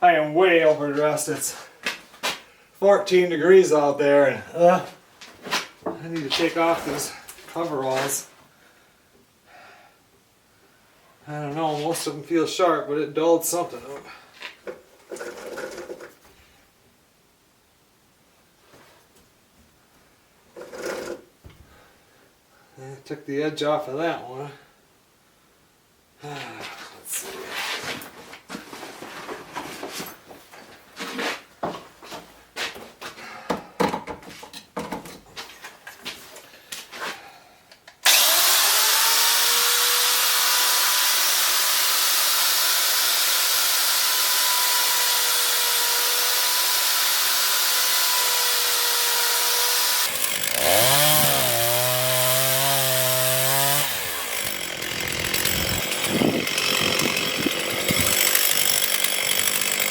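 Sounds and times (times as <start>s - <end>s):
chainsaw cutting wood: 15.1s - 16.1s, 20.6s - 21.2s, 38.0s - 59.9s.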